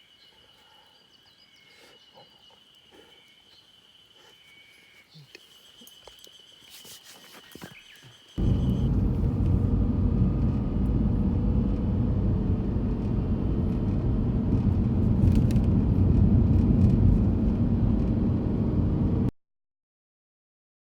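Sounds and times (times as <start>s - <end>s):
loud low rumble: 8.4s - 19.3s.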